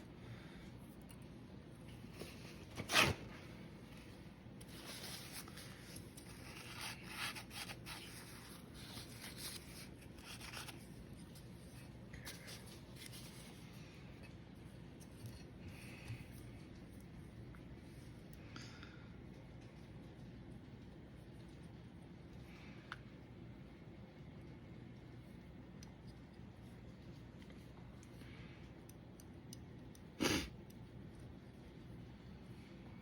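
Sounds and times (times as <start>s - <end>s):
rubbing and rustling by hand: 0.0s - 18.2s.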